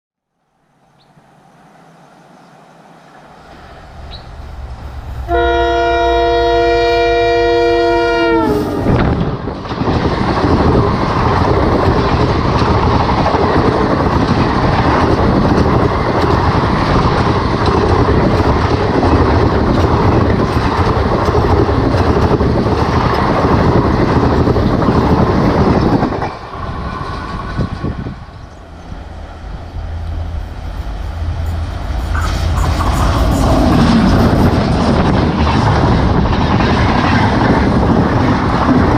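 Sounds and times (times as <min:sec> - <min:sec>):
train passing at speed: 0:00.4 - 0:38.9
multi-tone train horn: 0:05.2 - 0:09.2.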